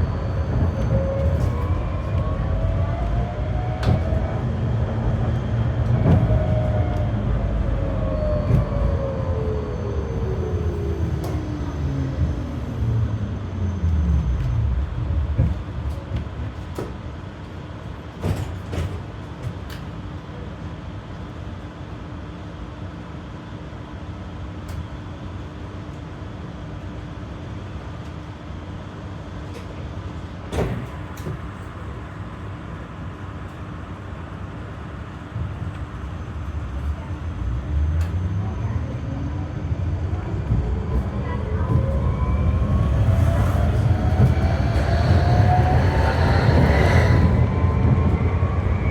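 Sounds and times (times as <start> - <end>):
tram motor whine: 0.0 - 17.8, 30.5 - 48.9
steady tram hum: 0.0 - 23.6, 24.4 - 48.9.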